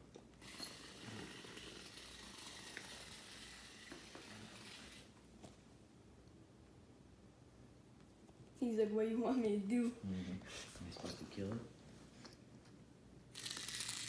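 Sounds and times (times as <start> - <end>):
vibrating toy buzzing: 0.4 - 5.1, 13.3 - 14.0.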